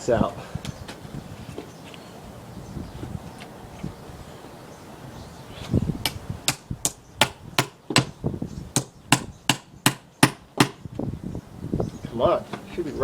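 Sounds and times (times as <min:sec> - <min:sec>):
hammer striking chisel: 0:08.8 - 0:10.8.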